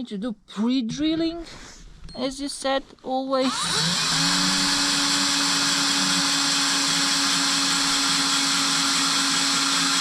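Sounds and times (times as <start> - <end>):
electric drill drilling metal: 3.4 - 10.0.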